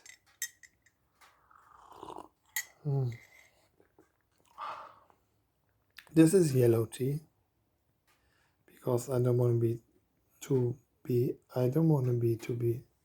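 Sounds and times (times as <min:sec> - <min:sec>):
person slurping tea: 0:01.4 - 0:04.6
person humming mm: 0:02.8 - 0:03.2.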